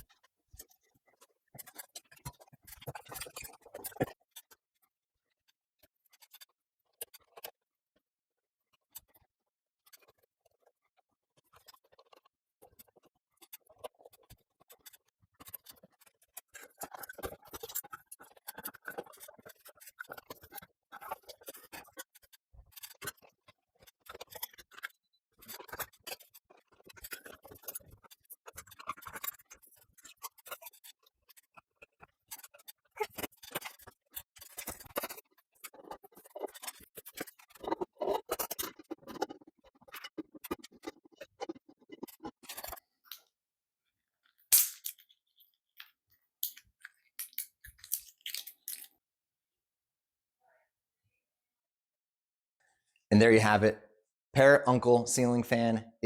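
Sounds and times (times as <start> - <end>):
tools clicking and tapping: 45.8 - 48.9.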